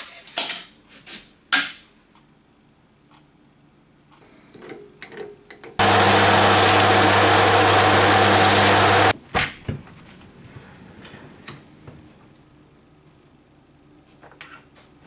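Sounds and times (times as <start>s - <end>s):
power tool hissing and humming: 5.8s - 9.1s.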